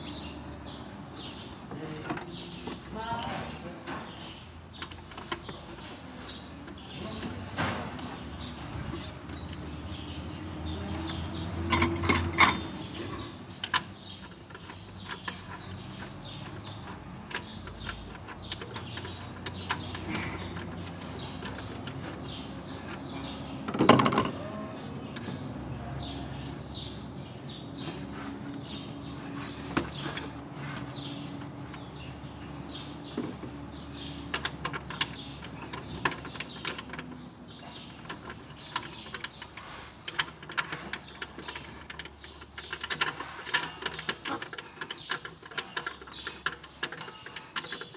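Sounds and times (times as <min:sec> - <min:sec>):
hand tools clicking and knocking: 0:04.7 - 0:09.9, 0:10.5 - 0:24.5, 0:27.8 - 0:47.9
tool clatter: 0:11.6 - 0:24.4.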